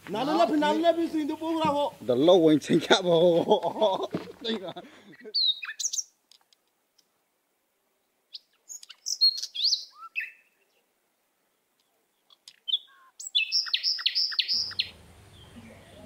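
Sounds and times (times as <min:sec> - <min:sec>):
songbirds chirping and whistling: 0:05.0 - 0:06.2, 0:08.0 - 0:10.9, 0:11.5 - 0:16.0.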